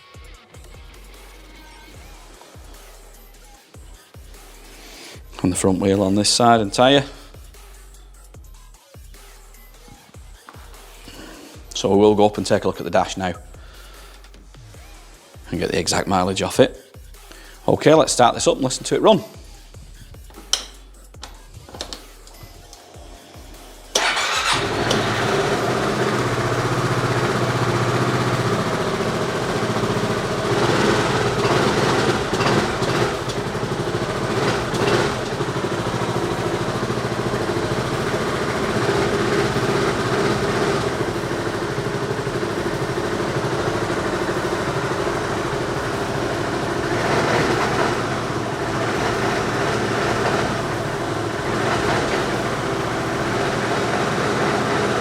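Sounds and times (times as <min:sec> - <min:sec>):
scooter engine starting and idling: 0:23.9 - 0:55.0.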